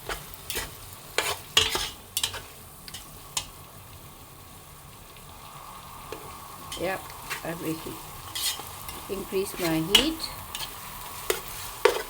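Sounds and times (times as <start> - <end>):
spatula scraping a pan: 0.0 - 3.5, 6.1 - 12.0
chicken sizzling in oil: 0.0 - 12.0.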